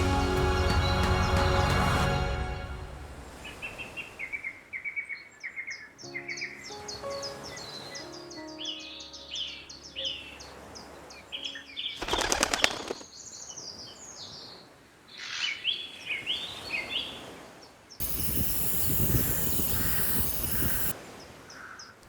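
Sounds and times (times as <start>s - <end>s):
loud rushing noise: 0.0s - 4.0s
small birds chirping: 3.4s - 17.2s, 17.9s - 22.0s
wings fluttering: 12.0s - 13.0s, 18.0s - 20.9s.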